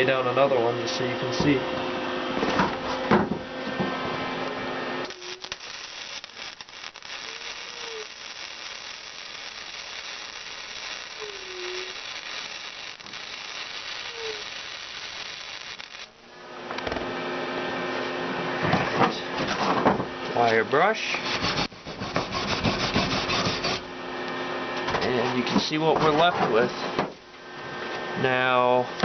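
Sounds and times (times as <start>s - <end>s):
steady hum: 0.0s - 29.0s
welding arc crackling: 4.5s - 16.9s.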